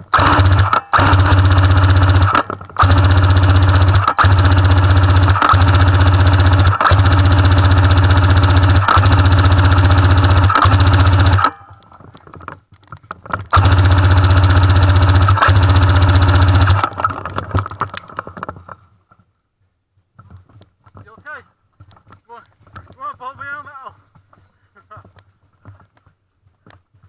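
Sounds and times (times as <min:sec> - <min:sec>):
toy gun full-auto bursts: 0:00.0 - 0:11.6, 0:13.5 - 0:17.7.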